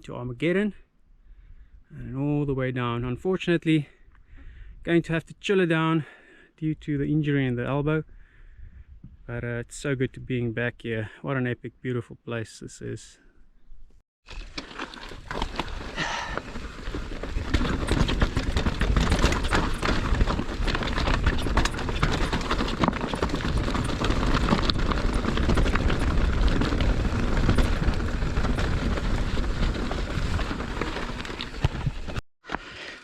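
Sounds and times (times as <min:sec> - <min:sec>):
bike rattling and knocking: 0:14.3 - 0:32.2
low tyre rumble on dirt: 0:14.3 - 0:32.2
wind buffeting microphone: 0:16.7 - 0:32.2.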